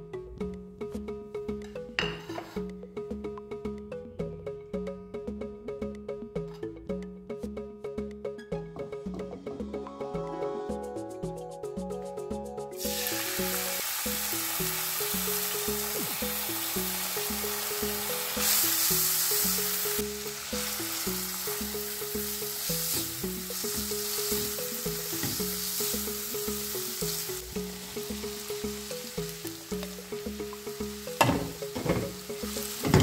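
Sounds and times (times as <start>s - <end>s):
background music: 0.0s - 33.0s
food sizzling in hot oil: 12.8s - 33.0s.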